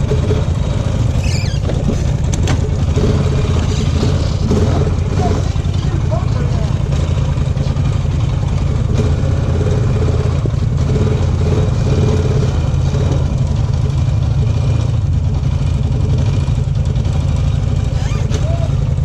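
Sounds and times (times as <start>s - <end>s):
off-road vehicle engine running: 0.0s - 19.0s.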